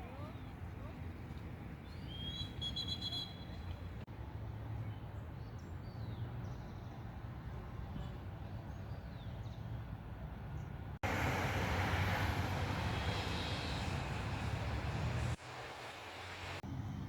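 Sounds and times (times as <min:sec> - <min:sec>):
small birds chirping: 0:01.8 - 0:03.8.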